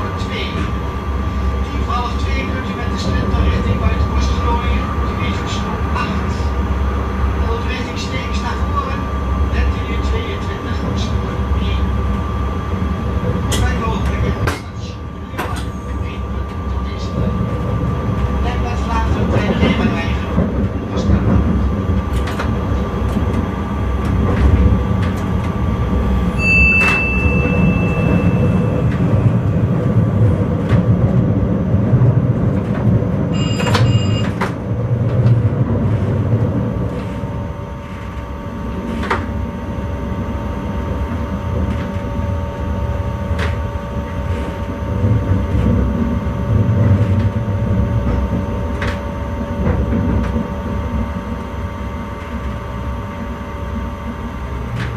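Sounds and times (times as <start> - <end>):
train rumbling: 0.0 - 54.9
electronic beep: 33.4 - 34.4
clicks from the track: 33.6 - 34.6.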